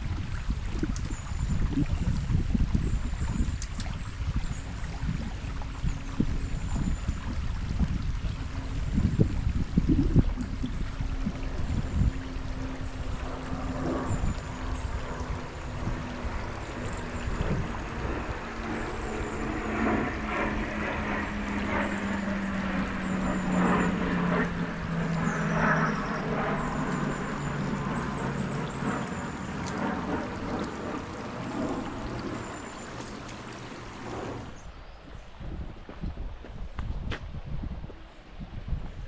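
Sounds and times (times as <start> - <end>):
distant engine drone passing: 0.0 - 35.0
river water rushing: 28.7 - 34.5.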